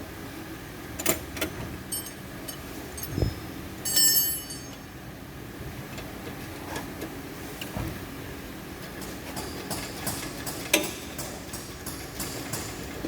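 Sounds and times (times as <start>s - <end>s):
low steady hum: 0.0s - 6.1s
bright metallic ring: 1.9s - 5.0s
metal tools clinking: 1.9s - 5.0s.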